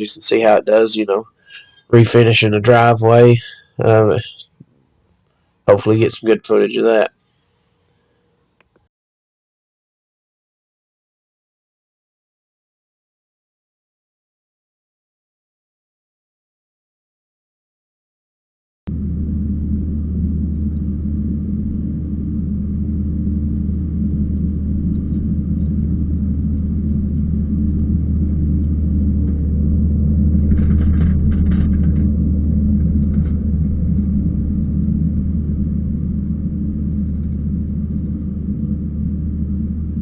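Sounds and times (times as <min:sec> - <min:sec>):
diesel engine rumbling: 0:00.0 - 0:04.4, 0:18.9 - 0:40.0
clattering: 0:30.3 - 0:34.9.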